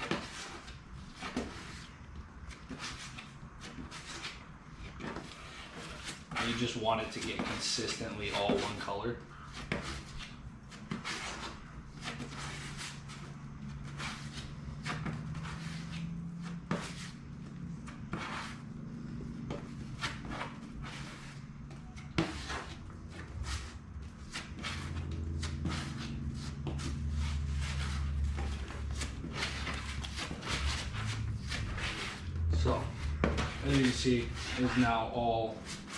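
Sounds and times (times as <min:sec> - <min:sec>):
low steady hum: 0:11.6 - 0:35.9.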